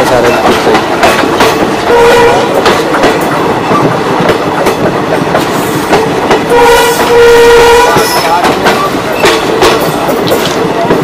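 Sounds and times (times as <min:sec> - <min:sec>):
train wheels clattering over rail joints: 0:00.0 - 0:11.0
train horn: 0:01.9 - 0:02.6, 0:06.5 - 0:08.3.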